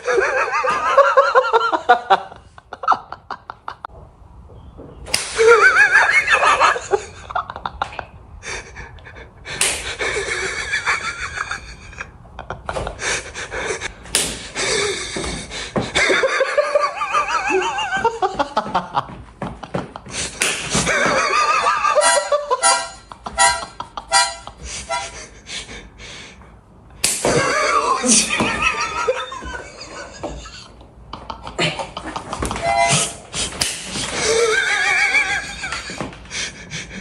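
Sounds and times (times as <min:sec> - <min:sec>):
sharp slaps: 0:05.1 - 0:05.6, 0:09.6 - 0:10.0, 0:14.0 - 0:14.6, 0:20.3 - 0:21.1, 0:27.0 - 0:27.7, 0:32.4 - 0:34.2
high-pitched laughter and squealing: 0:27.3 - 0:30.7, 0:34.1 - 0:36.0.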